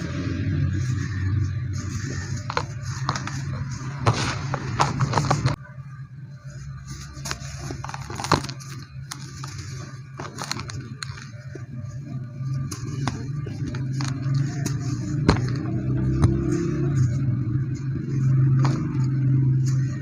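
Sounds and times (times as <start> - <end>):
cement crunching and crackling: 1.8 - 5.6, 7.0 - 16.6.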